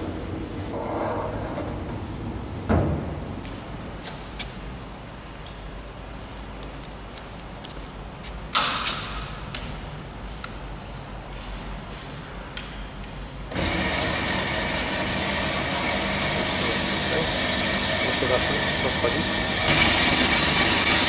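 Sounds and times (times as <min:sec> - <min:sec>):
saw motor humming and whining: 0:13.5 - 0:21.0.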